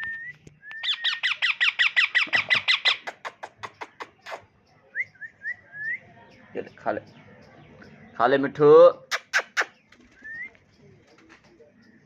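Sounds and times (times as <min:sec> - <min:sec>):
parrot squawky chirps: 0:00.9 - 0:04.4.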